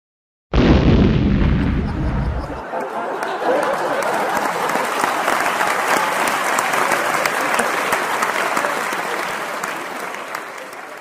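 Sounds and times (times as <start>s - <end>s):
applause: 2.6s - 11.0s.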